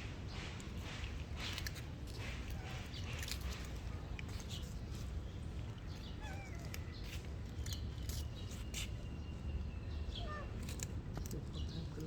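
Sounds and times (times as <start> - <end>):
cat chirping calls: 6.0 - 7.0, 10.0 - 10.7.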